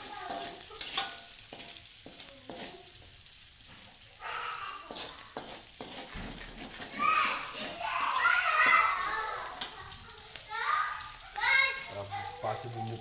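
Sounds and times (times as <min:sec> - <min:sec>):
spatula scraping a pan: 0:00.0 - 0:10.0
paste sizzling in hot oil: 0:00.0 - 0:13.0.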